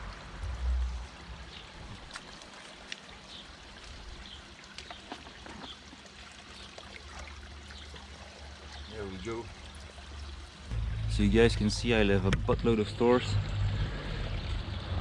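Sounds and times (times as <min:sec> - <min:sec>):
light clicks and splashes: 0:00.0 - 0:10.7
water trickling and dripping: 0:00.0 - 0:15.0
low rumble on microphone: 0:10.3 - 0:15.0.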